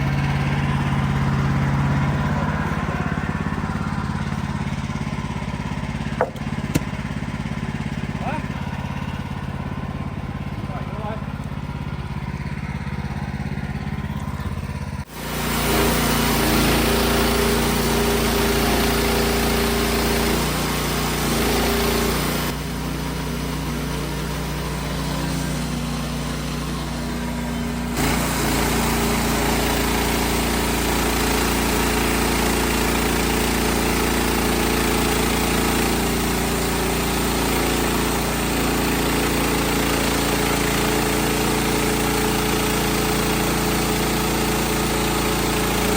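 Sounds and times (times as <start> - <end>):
sawmill engine running: 0.0 - 45.9
band blade sawing through log: 5.7 - 9.2, 15.2 - 45.9.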